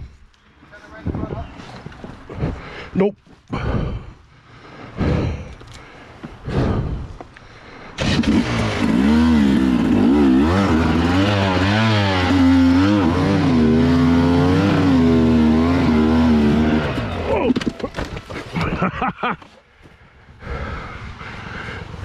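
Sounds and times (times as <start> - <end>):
dirt bike engine revving: 8.0 - 17.6.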